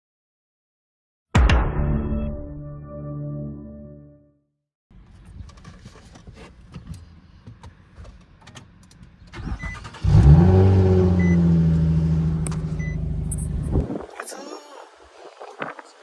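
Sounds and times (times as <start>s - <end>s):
faint clicks and rustles: 5.0s - 9.4s
car engine starting and idling: 7.0s - 13.8s.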